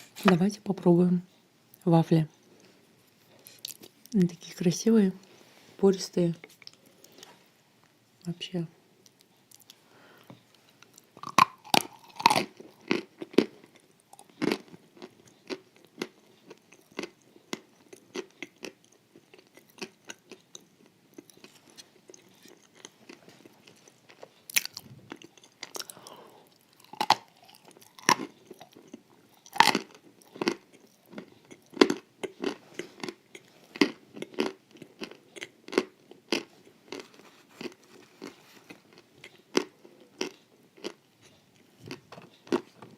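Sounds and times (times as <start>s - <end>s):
crunching wafers: 10.8s - 41.0s.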